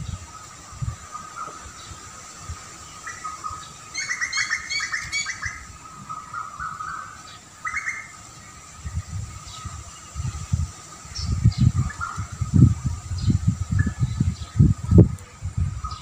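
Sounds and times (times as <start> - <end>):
bird chirping: 2.7 - 10.4.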